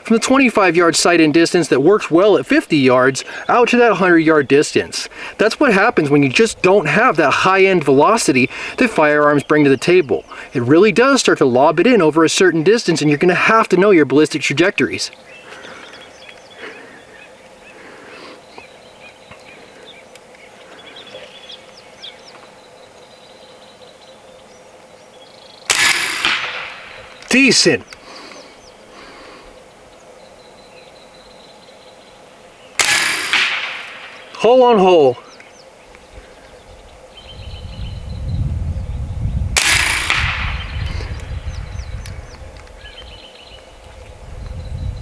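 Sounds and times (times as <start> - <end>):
steady background noise: 0.0 - 45.0
wind rumbling on microphone: 4.1 - 10.5, 36.0 - 45.0
bird chirps: 15.1 - 25.8, 26.7 - 32.8, 34.0 - 39.5, 40.4 - 43.8
air rifle shot: 25.7 - 27.4, 32.8 - 34.4, 39.6 - 41.4.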